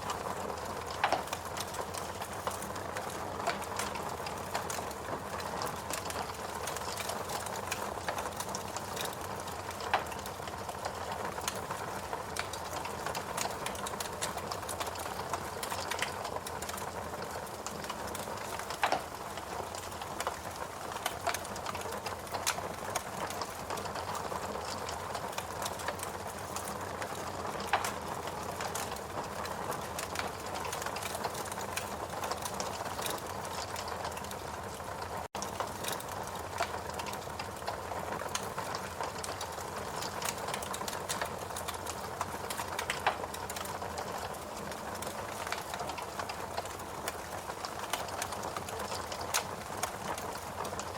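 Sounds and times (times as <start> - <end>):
fireplace crackling: 0.0 - 50.9.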